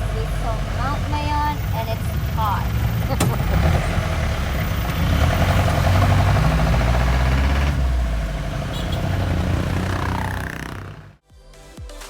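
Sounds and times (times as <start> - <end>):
vehicle engine running: 0.0 - 11.2.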